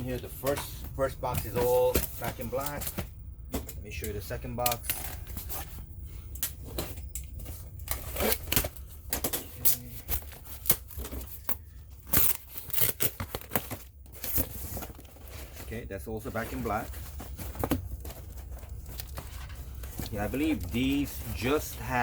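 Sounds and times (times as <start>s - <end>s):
packing material rustling: 0.0s - 22.0s.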